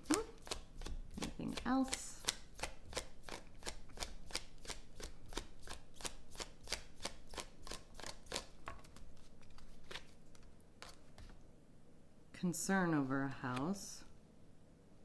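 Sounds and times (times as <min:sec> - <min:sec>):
cards being shuffled by hand: 0:00.0 - 0:11.4.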